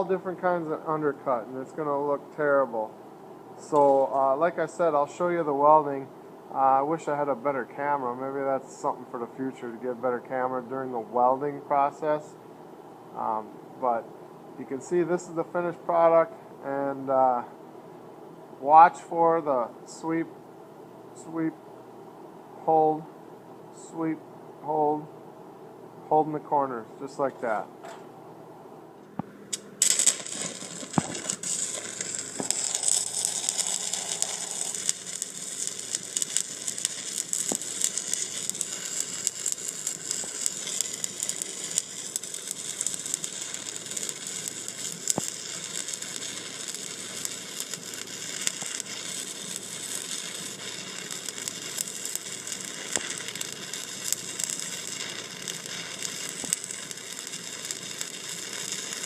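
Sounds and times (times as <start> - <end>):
welding arc crackling: 29.1 - 59.0.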